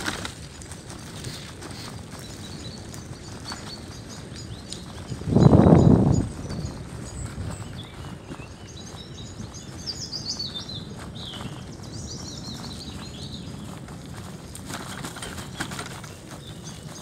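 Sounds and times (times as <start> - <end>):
bicycle tyres rolling on pavement: 0.0 - 17.0
birds chirping and trilling: 0.0 - 17.0
wind on microphone: 0.0 - 17.0.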